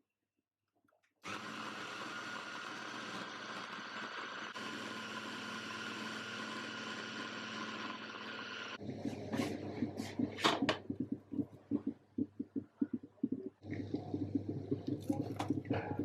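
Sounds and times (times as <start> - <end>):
electric motor whirring: 1.2 - 8.8.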